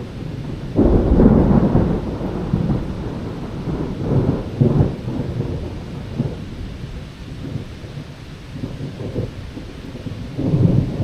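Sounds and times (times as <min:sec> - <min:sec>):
distant thunder rumbling: 0:00.0 - 0:11.0.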